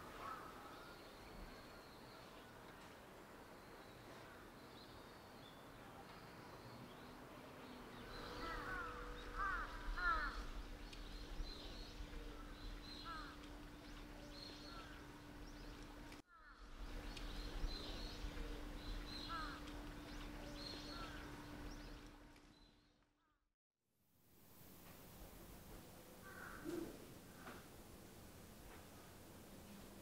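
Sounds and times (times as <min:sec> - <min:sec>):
faint low hum: 0:00.0 - 0:22.8
birds chirping: 0:03.4 - 0:22.8.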